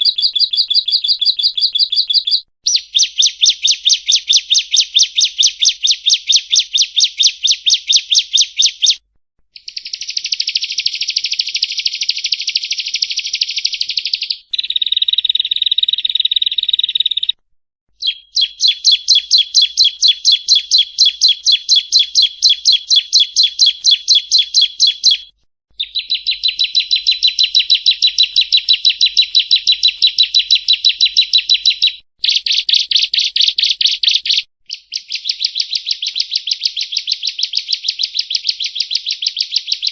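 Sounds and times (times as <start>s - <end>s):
bird singing rapid trills: 0.0s - 9.0s, 18.0s - 39.9s.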